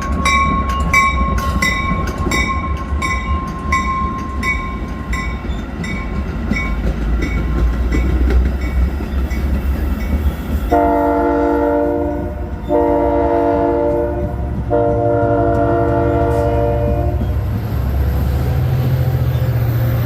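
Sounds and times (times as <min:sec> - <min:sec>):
train low rumble: 0:00.0 - 0:20.0
locomotive air horn blasts: 0:10.7 - 0:17.3.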